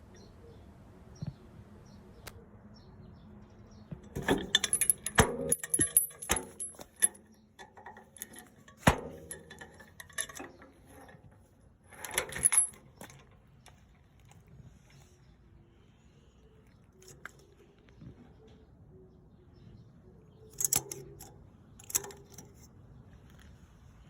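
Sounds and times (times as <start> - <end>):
clattering knocks: 4.0 - 11.3
metallic rattling: 4.0 - 13.4.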